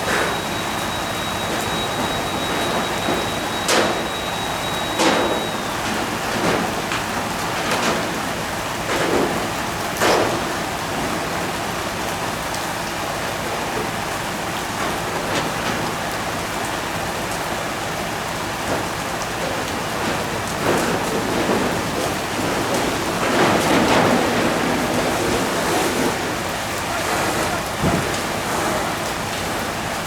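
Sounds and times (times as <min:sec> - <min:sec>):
fire rushing hiss: 0:20.6 - 0:30.0.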